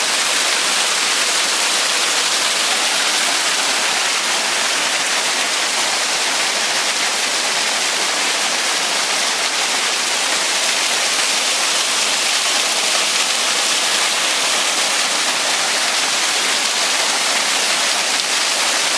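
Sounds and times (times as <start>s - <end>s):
waterfall roaring: 0.0s - 18.9s.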